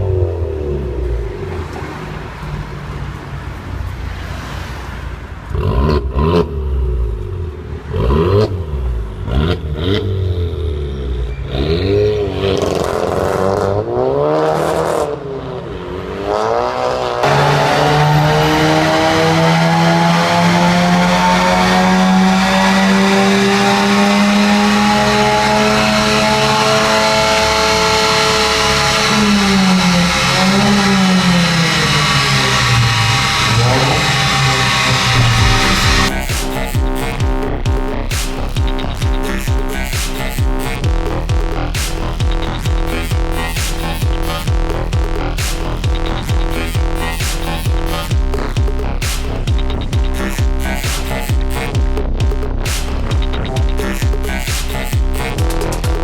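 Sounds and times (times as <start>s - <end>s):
car engine revving: 0.0s - 56.0s
exhaust cracks: 17.2s - 56.0s.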